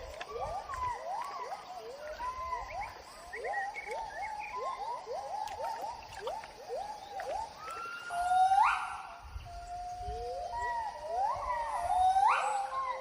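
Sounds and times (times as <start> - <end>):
gibbon hooting and whooping: 6.7 - 13.0.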